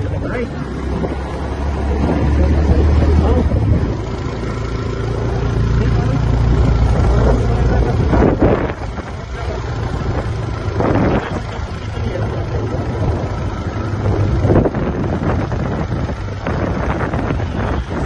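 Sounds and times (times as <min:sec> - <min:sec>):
vehicle engine rumble: 0:00.0 - 0:18.0
wind noise on microphone: 0:00.0 - 0:18.0.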